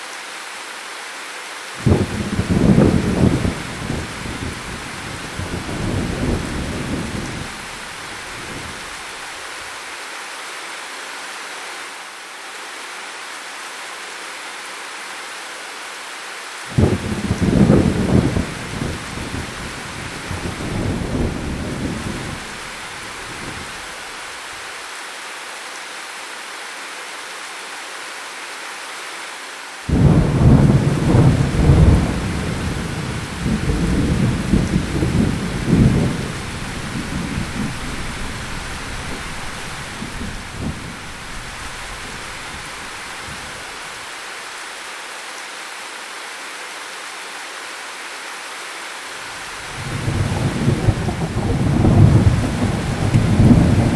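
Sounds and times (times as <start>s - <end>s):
steady rain: 0.0s - 53.9s
thunder rolling: 1.8s - 8.9s, 16.7s - 23.9s, 29.9s - 43.7s, 49.6s - 53.9s.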